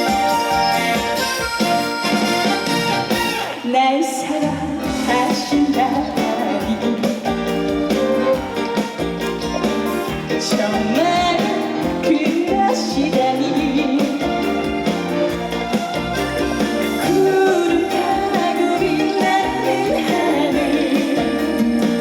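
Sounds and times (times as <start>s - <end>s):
wavering melody line: 0.0s - 3.6s, 13.0s - 22.0s
live band with keyboards: 0.0s - 22.0s.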